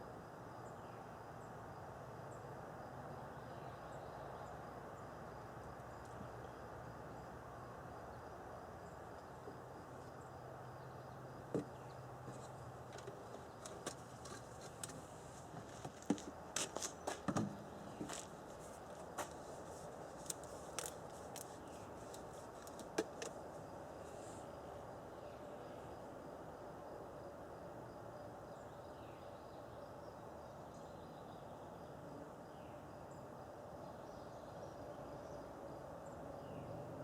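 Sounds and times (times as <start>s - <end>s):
hands handling objects: 12.3s - 23.4s.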